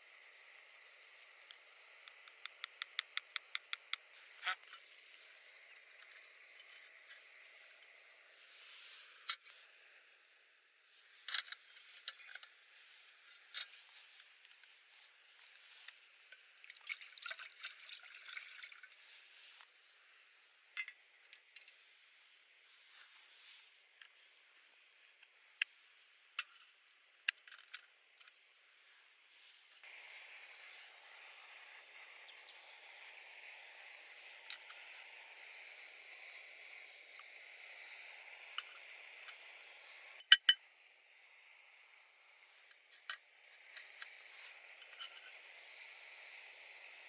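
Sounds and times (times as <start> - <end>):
faint outdoor hiss: 0.0 - 47.0
small clicks and splashes: 15.4 - 19.0
water trickling: 16.6 - 19.0.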